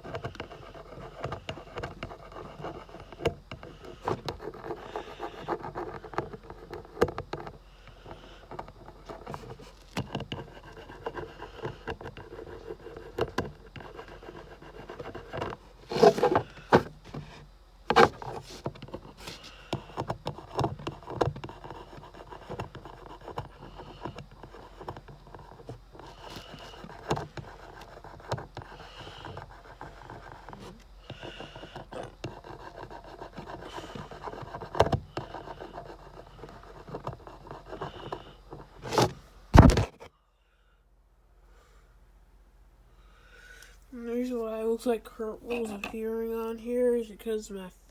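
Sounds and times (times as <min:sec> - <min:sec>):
marker scratching over badge: 0:00.0 - 0:07.0, 0:08.0 - 0:16.4, 0:17.9 - 0:39.1.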